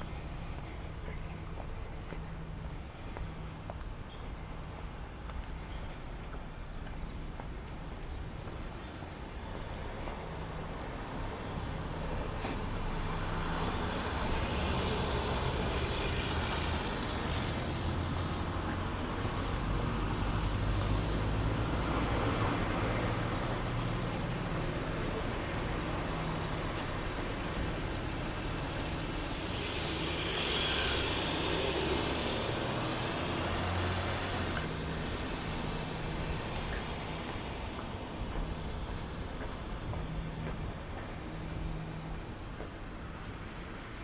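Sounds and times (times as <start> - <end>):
heavy vehicle engine droning: 10.7 - 42.5.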